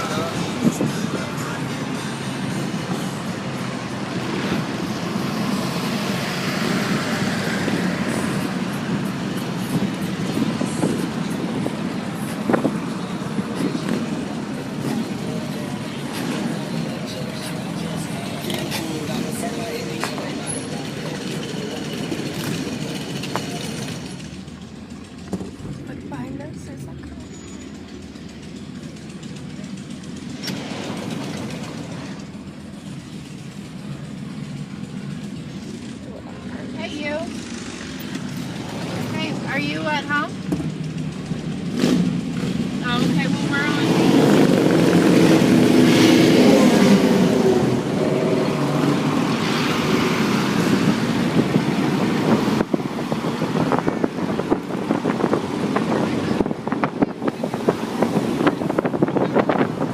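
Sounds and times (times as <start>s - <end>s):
vehicle engine rumbling: 0.0s - 59.9s
wind buffeting microphone: 50.4s - 59.9s.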